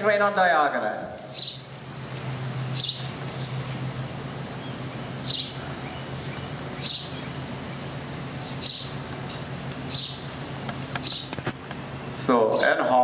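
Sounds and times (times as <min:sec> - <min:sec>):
steady low hum: 0:00.0 - 0:13.0
bird chirping: 0:01.3 - 0:01.8, 0:02.6 - 0:09.1, 0:09.8 - 0:10.4, 0:11.0 - 0:11.4.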